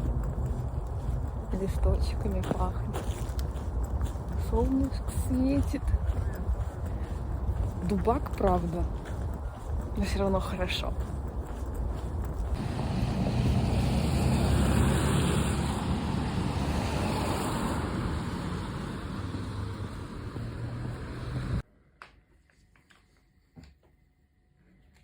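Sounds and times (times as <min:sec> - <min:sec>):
wind buffeting microphone: 0:00.0 - 0:21.6.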